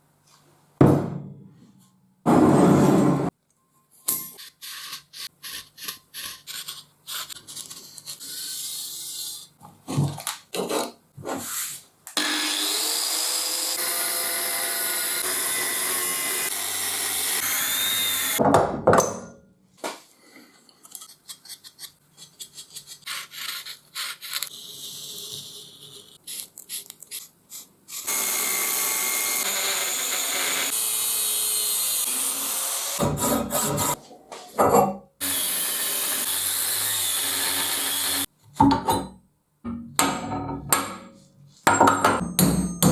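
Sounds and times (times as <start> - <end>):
power tool running on steel: 12.2 - 18.4, 28.1 - 33.0.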